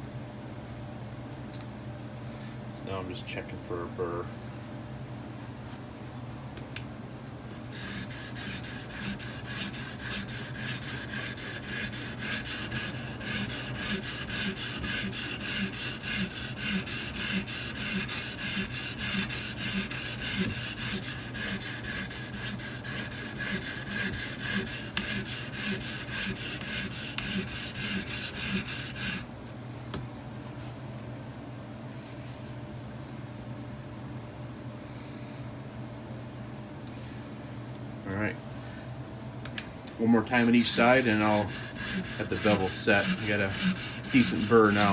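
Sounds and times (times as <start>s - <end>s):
sharpening stone rasping on knife: 7.8s - 29.2s, 40.4s - 44.9s.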